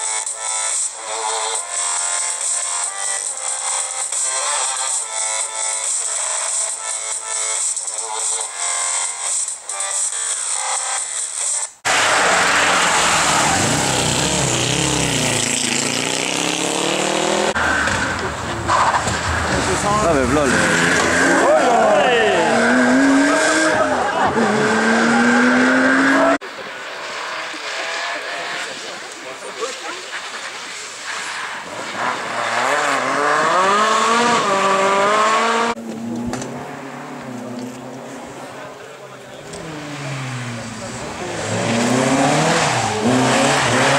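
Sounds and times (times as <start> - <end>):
rally car engine accelerating: 11.9 - 31.0, 31.6 - 43.9.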